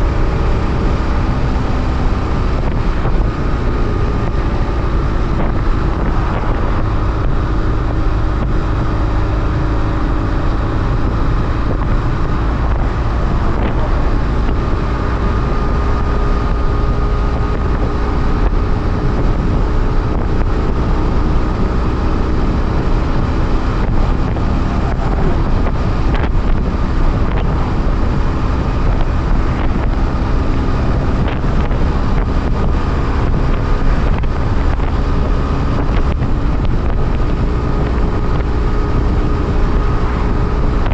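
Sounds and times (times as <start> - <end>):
motorcycle engine running: 0.0 - 40.9
wind rush on microphone: 0.0 - 40.9.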